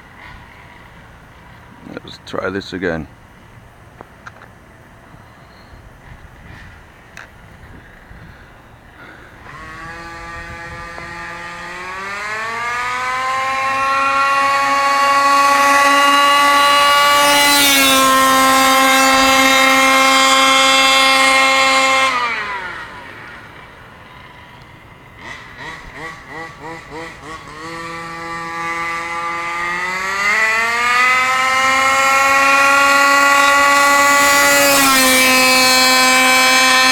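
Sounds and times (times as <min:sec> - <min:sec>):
rc truck engine screaming: 0:08.9 - 0:36.9.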